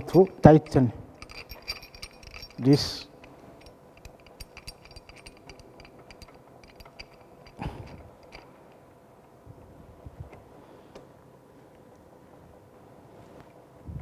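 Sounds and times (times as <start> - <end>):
pipe wrench clicking and scraping: 0.0 - 8.5.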